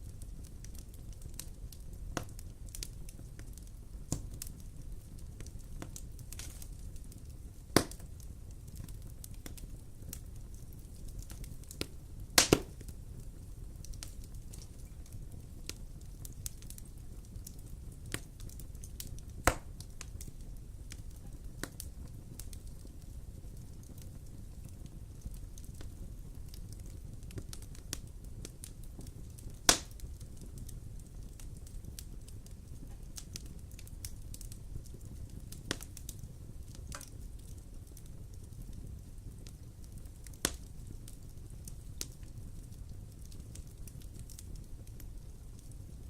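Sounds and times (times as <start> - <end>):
fire crackling and popping: 0.0 - 46.0
wood fire rumbling: 0.0 - 46.0.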